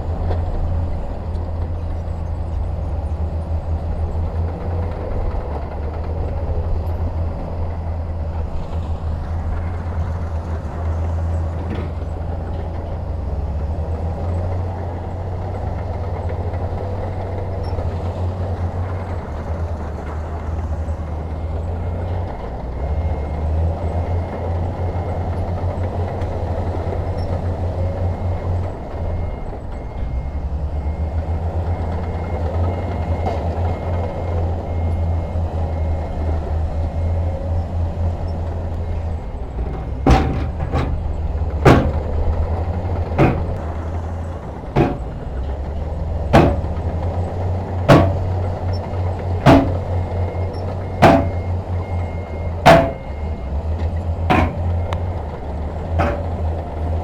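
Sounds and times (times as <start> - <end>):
diesel machinery rumbling: 0.0 - 57.0
sharp metallic clank: 39.6 - 42.2, 43.2 - 43.6, 44.7 - 45.4, 46.3 - 46.8, 47.9 - 48.4, 49.4 - 49.9, 51.0 - 51.5, 52.7 - 53.2, 54.3 - 54.8, 56.0 - 56.4.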